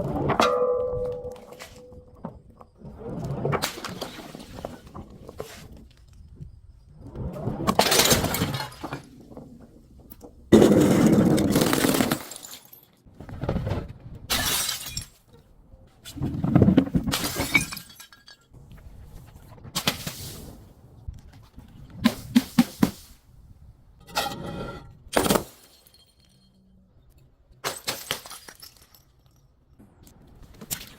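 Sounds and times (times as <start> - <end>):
glass breaking and crunching: 11.0 - 12.9, 14.3 - 15.2, 17.1 - 18.5.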